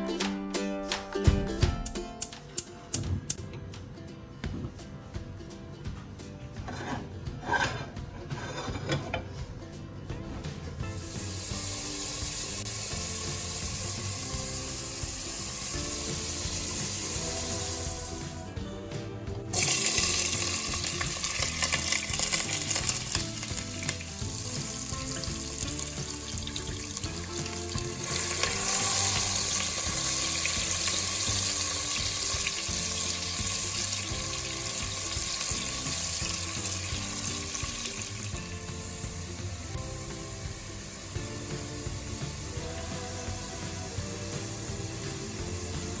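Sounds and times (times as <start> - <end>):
food sizzling in hot oil: 10.8 - 18.5, 19.5 - 46.0.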